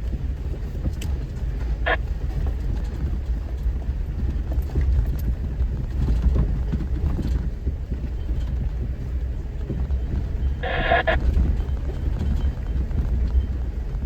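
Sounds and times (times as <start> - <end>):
off-road vehicle rumbling: 0.0 - 14.0
brief high-pitched tone: 10.6 - 11.2.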